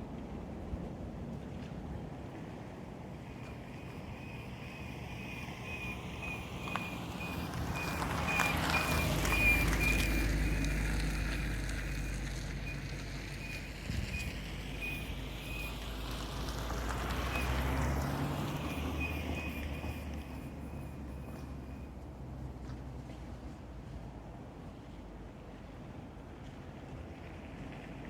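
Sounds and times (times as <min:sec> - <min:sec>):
road and engine rumble: 0:00.0 - 0:28.0
high-pitched brake chirp: 0:03.2 - 0:21.9.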